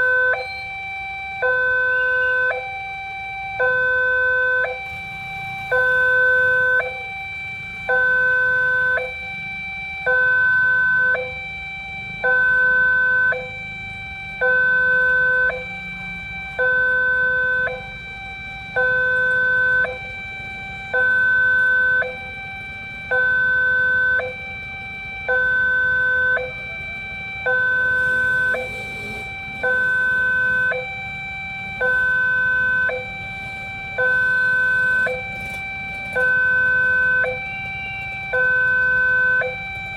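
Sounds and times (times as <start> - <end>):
level crossing two-tone alarm: 0.0 - 39.9.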